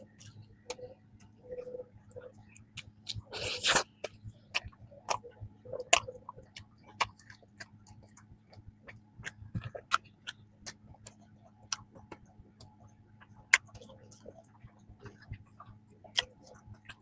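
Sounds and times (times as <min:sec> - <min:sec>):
chewing crisp pastry: 0:00.0 - 0:17.0.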